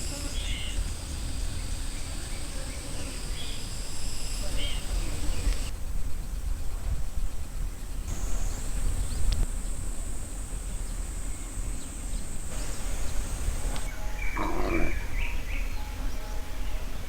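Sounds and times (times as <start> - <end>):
high insect drone: 0.0 - 5.7, 8.1 - 17.0
low microphone rumble: 12.3 - 15.3.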